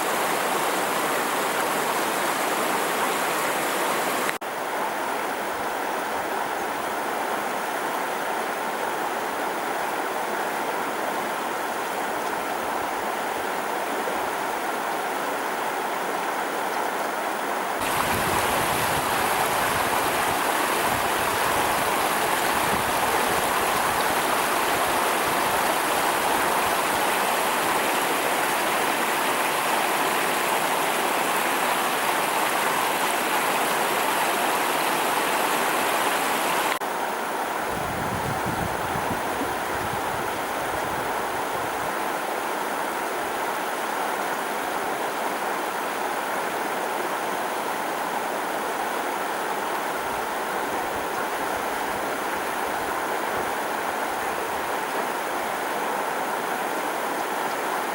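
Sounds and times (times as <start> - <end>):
stream water rushing: 0.0 - 57.9.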